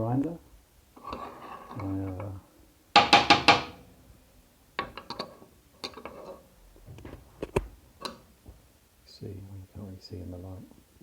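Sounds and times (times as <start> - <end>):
coffee grinder parts knocking: 3.0 - 3.8.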